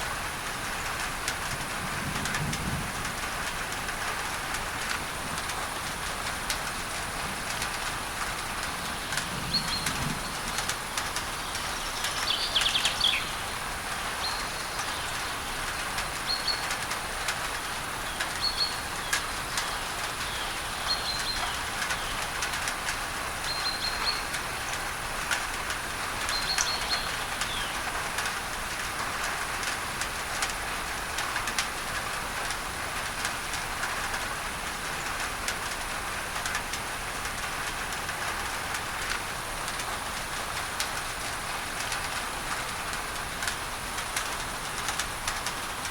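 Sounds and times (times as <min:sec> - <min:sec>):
rain on a tin roof: 0:00.0 - 0:45.9
bird chirping: 0:11.4 - 0:13.4.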